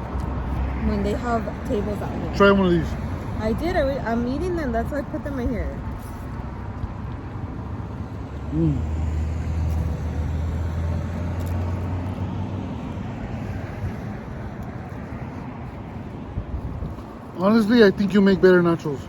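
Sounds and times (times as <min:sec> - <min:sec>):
traffic noise: 0:00.0 - 0:19.0
vehicle engine rumble: 0:00.0 - 0:19.0.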